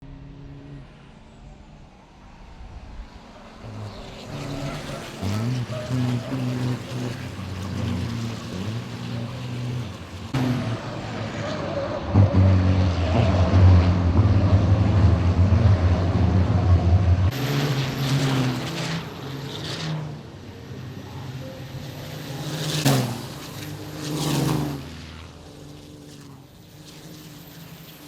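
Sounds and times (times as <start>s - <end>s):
diesel truck engines running hard: 3.6s - 25.5s.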